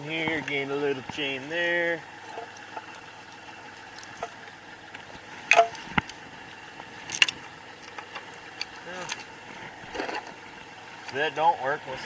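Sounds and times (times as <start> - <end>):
steel chain clanking: 3.9 - 4.5, 5.5 - 5.9, 7.0 - 7.4.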